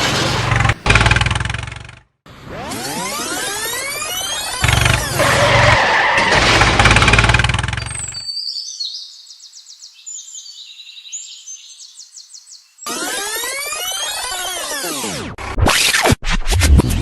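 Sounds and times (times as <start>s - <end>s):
vehicle engine rumbling: 0.0s - 2.2s, 3.9s - 8.2s
faint high bird chirps: 7.8s - 14.4s.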